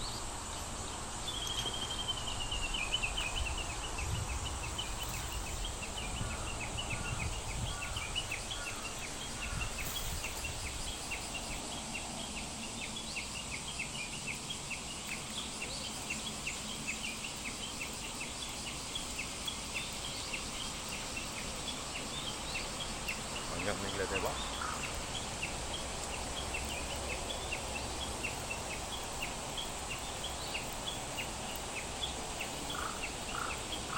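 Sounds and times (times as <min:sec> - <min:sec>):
insect hiss: 0:00.0 - 0:33.9
lower bird calls: 0:29.9 - 0:33.9.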